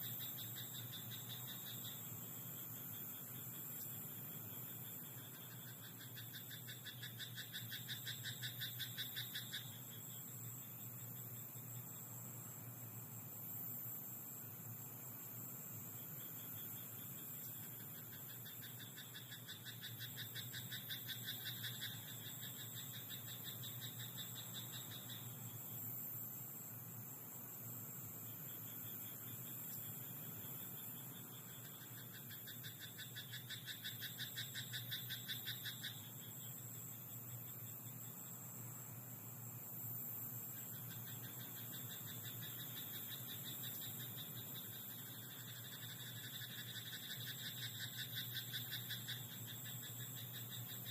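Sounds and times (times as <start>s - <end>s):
steady high hiss: 0.0s - 50.9s
frog croaking: 4.6s - 10.0s, 16.8s - 25.3s, 29.3s - 36.5s, 40.5s - 50.9s.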